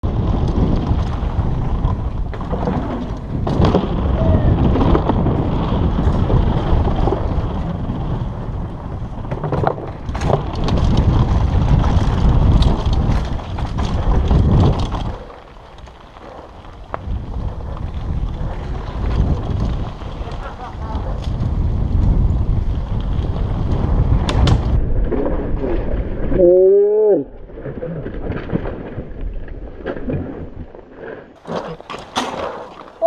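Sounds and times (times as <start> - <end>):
mountain bike rattling over trail: 0.0 - 26.4, 28.2 - 33.0
wind buffeting microphone: 0.0 - 26.4
sharp knocks from bike: 31.4 - 33.0.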